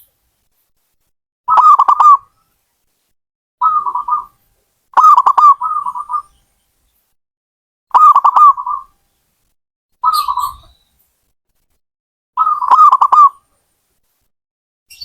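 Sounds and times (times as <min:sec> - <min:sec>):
dove cooing: 0:01.5 - 0:02.2, 0:03.6 - 0:04.3, 0:05.0 - 0:06.3, 0:08.0 - 0:08.9, 0:12.4 - 0:13.3.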